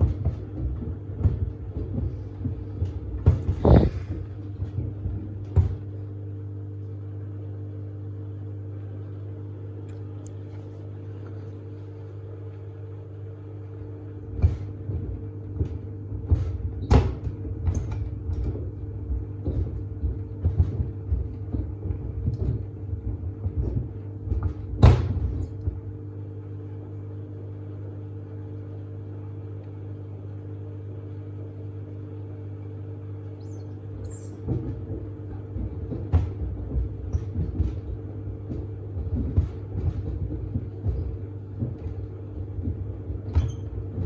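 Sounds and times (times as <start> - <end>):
shoes thudding in drum: 0.0 - 5.9, 34.4 - 44.0
washing machine motor hum: 0.0 - 44.0.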